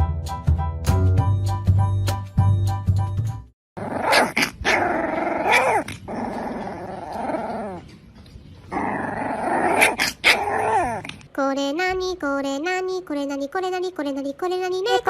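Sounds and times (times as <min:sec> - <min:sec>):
dog growling: 0:03.8 - 0:08.0, 0:08.6 - 0:11.3.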